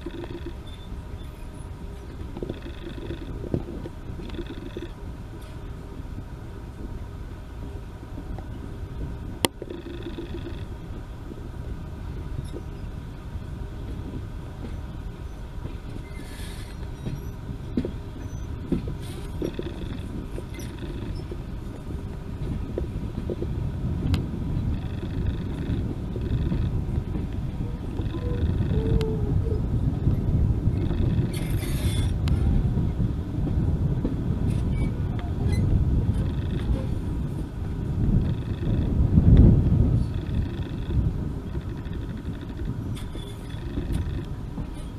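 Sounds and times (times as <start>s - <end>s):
train rumbling: 0.0s - 44.9s.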